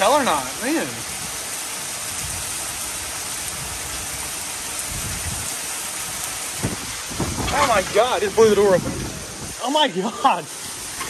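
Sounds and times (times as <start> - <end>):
heavy rain pouring: 0.0 - 11.0
wind rumbling on microphone: 1.0 - 9.6.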